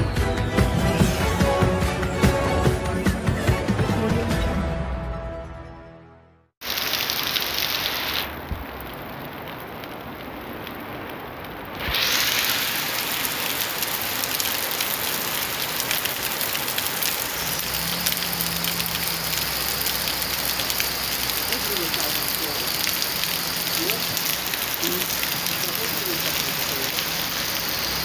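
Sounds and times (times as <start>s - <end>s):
heavy rain on street and cars: 6.6s - 28.0s.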